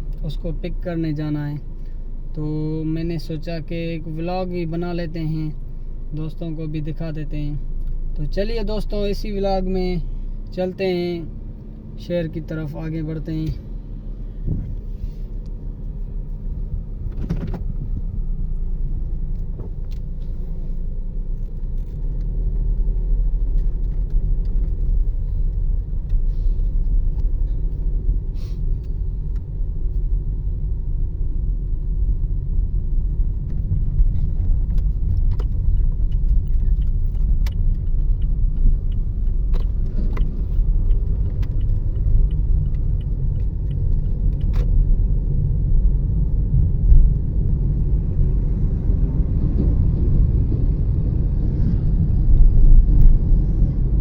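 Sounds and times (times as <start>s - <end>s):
car engine and tyres rumbling: 0.0s - 54.0s
light clicks and rattles: 23.3s - 28.0s, 33.4s - 45.2s.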